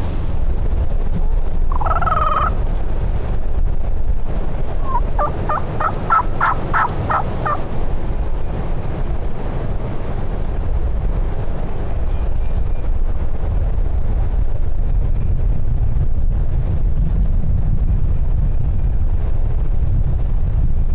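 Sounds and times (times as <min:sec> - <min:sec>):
steady low rumble: 0:00.0 - 0:20.9
turkey gobbling: 0:01.7 - 0:02.6, 0:04.8 - 0:07.6.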